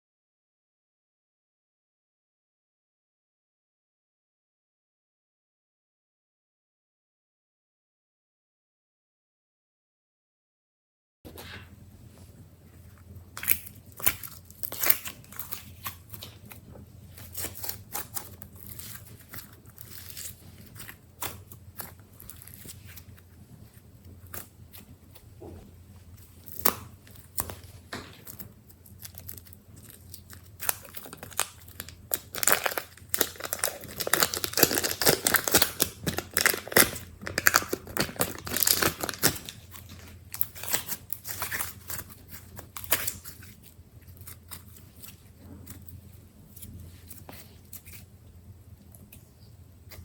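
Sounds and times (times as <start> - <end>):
slime squishing and crackling: 11.3 - 48.2.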